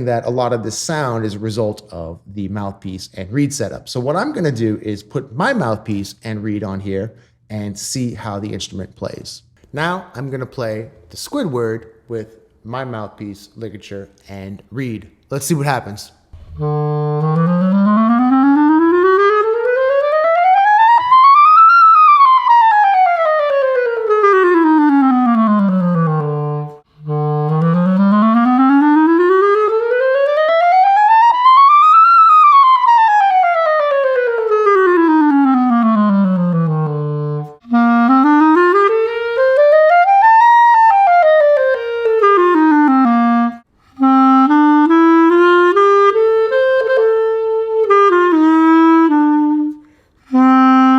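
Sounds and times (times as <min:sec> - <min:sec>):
breath: 0:07.2 - 0:07.5, 0:49.8 - 0:50.3
clarinet playing scales: 0:15.4 - 0:50.9.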